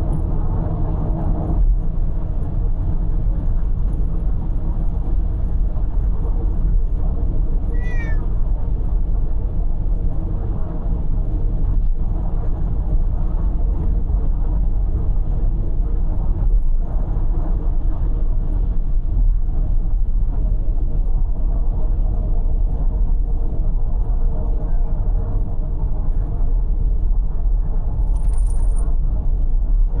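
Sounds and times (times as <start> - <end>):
car cabin road and engine noise: 7.7 - 8.3
cat meowing: 7.7 - 8.3.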